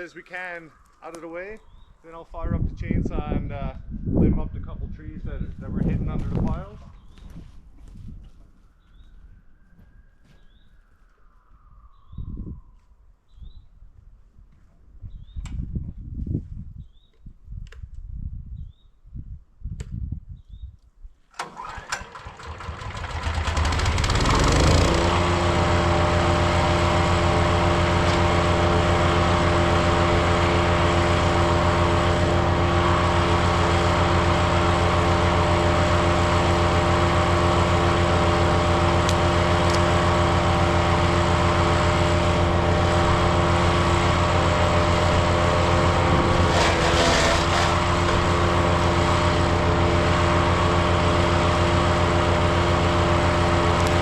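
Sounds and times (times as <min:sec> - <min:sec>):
wood chipper gas engine: 0:21.4 - 0:54.0.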